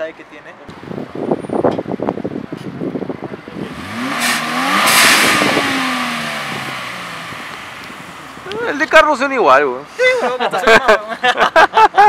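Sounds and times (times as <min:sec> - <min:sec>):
car engine revving: 0:03.4 - 0:09.7.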